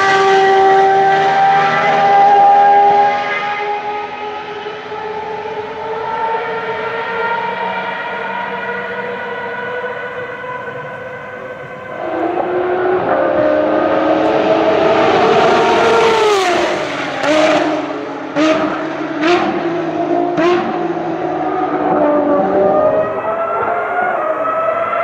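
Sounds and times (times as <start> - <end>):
high-revving race car engine: 0.0 - 25.0.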